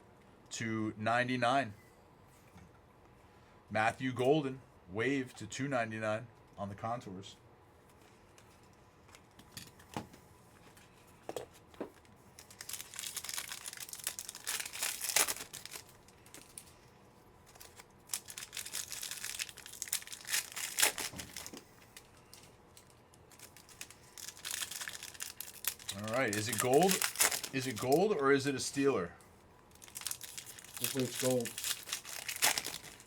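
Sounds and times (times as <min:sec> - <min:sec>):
wrappers tearing and crinkling: 0:12.4 - 0:16.8, 0:17.4 - 0:28.2, 0:29.7 - 0:33.0.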